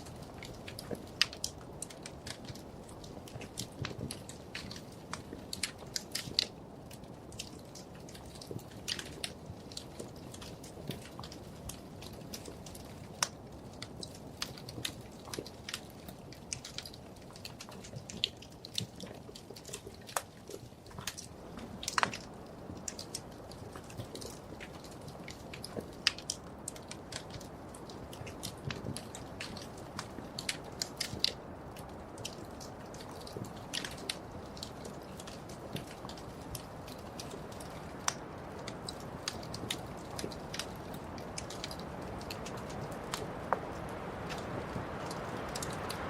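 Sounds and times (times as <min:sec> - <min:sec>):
flames rushing: 0:00.0 - 0:46.0
sharp pops and snaps: 0:00.0 - 0:46.0
wood fire crackling: 0:00.0 - 0:46.0.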